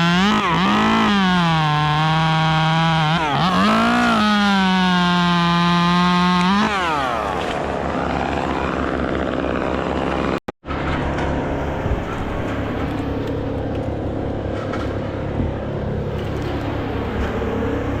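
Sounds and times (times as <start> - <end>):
chainsaw running: 0.0 - 10.4.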